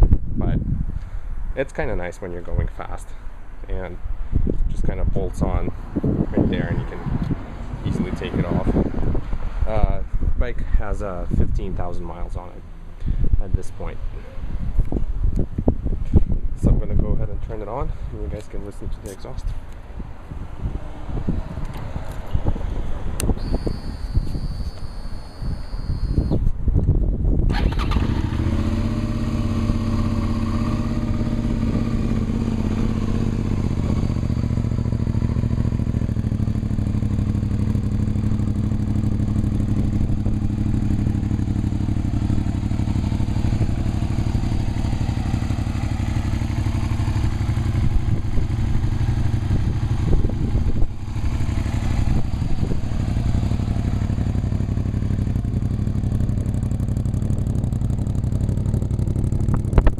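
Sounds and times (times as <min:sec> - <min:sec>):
motorcycle engine idling: 0:23.4 - 0:26.4, 0:27.5 - 0:59.9.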